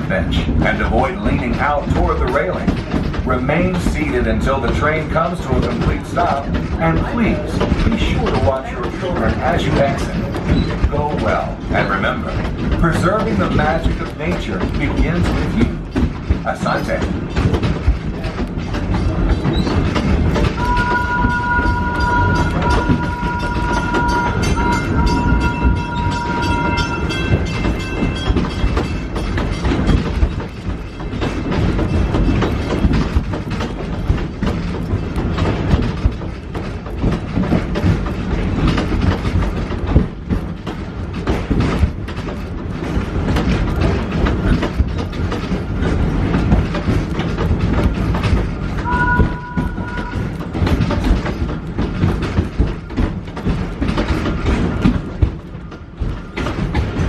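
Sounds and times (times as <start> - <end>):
train cars rumbling and rattling: 0.0 - 57.0
two-note tone: 20.6 - 26.9, 48.8 - 50.3
high squeal: 20.6 - 27.0, 48.8 - 50.4.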